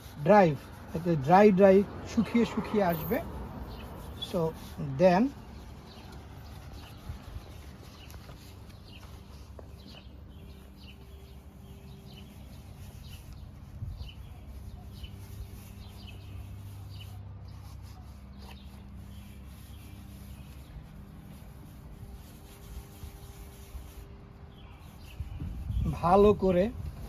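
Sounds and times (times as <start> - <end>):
birds chirping: 0.3 - 17.2.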